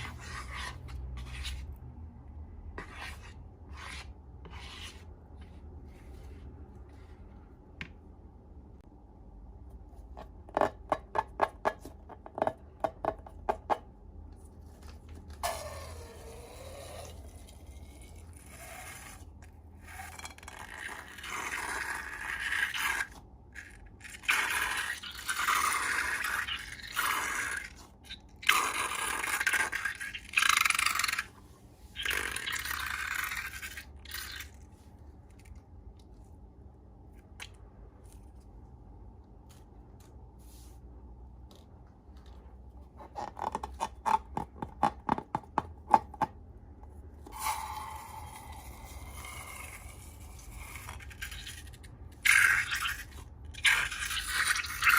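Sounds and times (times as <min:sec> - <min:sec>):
slime scraping and rubbing: 0:00.0 - 0:01.9, 0:02.7 - 0:06.6.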